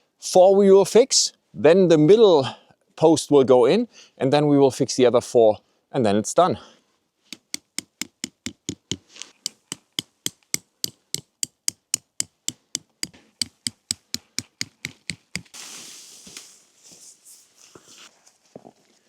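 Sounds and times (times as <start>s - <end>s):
sharp knocks: 7.3s - 15.5s
steady hiss: 15.3s - 18.1s.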